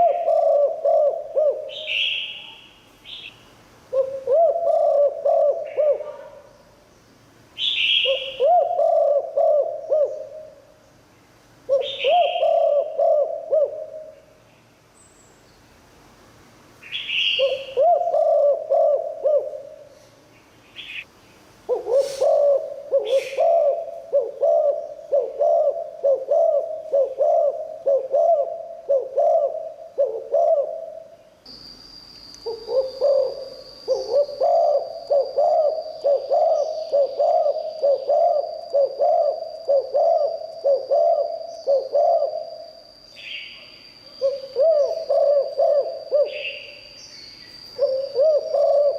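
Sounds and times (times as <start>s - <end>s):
dove cooing: 0.0s - 2.5s, 3.9s - 6.6s, 7.6s - 10.8s, 11.7s - 14.4s, 17.2s - 20.0s, 21.7s - 31.2s, 32.5s - 42.8s, 44.2s - 46.8s, 47.8s - 48.9s
high bird calls: 11.7s - 15.4s, 16.8s - 31.3s, 32.4s - 48.9s
thin high whine: 31.4s - 48.9s.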